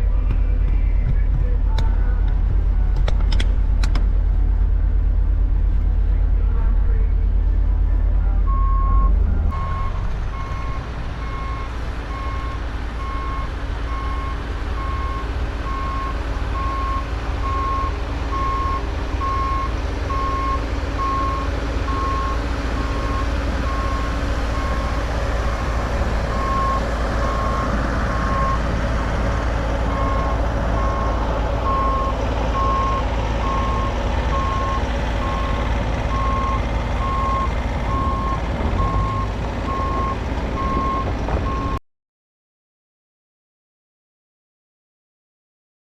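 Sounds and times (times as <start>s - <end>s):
low engine rumble: 0.0s - 41.8s
reverse alarm beeping: 8.5s - 25.0s, 29.9s - 41.8s.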